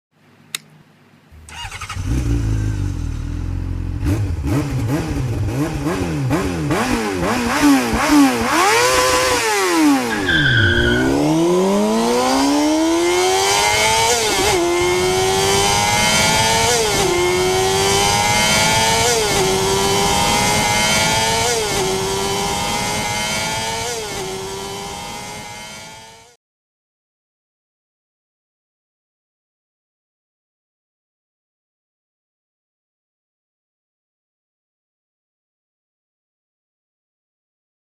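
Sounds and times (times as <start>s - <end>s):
motorcycle accelerating through gears: 1.4s - 26.4s
motorcycle engine revving: 1.4s - 26.4s.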